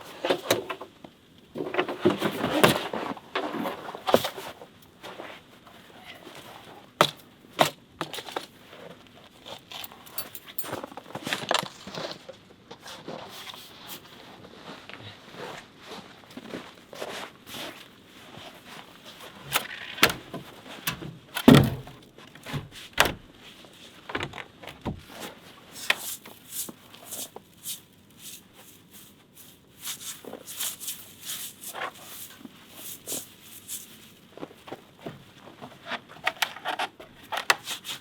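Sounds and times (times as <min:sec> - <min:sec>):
knocks clicks and rustling: 0:19.4 - 0:23.3.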